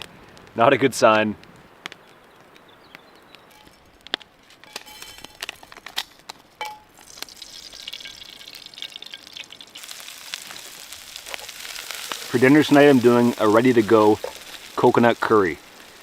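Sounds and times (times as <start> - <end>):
food frying hiss: 6.6 - 16.0.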